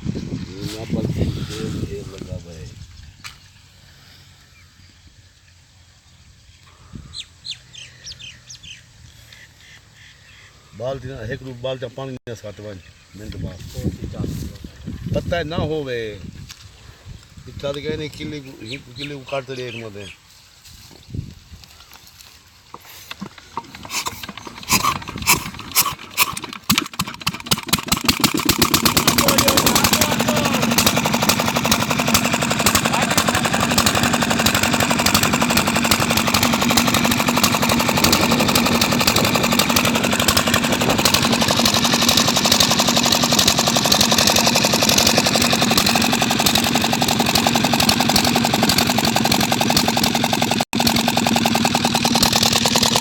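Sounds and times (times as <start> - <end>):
diesel engine starting and running: 22.8 - 53.0.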